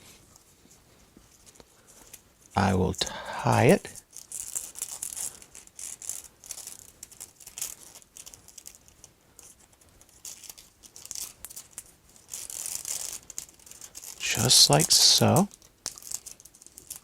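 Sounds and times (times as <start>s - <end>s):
paper and ribbon rustling: 3.9s - 17.0s.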